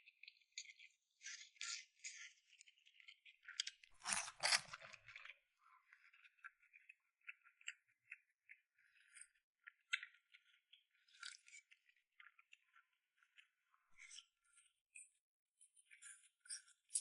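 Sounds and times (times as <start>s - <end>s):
person chewing: 2.9s - 5.4s
noodles slurping: 4.0s - 5.2s.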